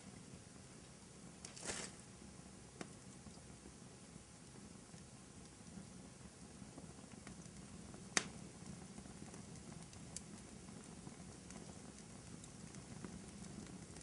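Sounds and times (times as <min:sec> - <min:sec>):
fire crackling: 0:00.0 - 0:14.0
sharp fire pop: 0:08.1 - 0:08.4.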